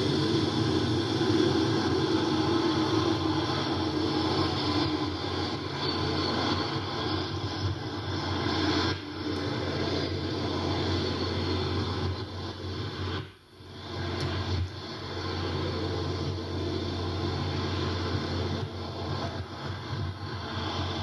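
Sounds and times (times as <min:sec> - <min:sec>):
turboprop engines droning: 0:00.0 - 0:21.0.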